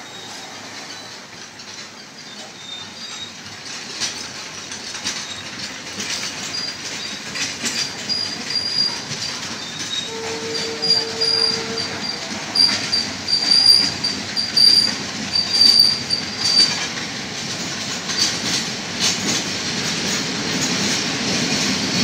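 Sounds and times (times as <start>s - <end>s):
train wheels clicking over rail joints: 0.2s - 22.0s
high-pitched wheel squeals: 8.1s - 16.9s.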